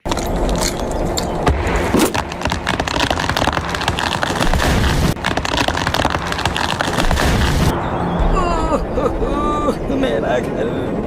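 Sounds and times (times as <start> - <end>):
heavy rain: 2.1 - 10.2.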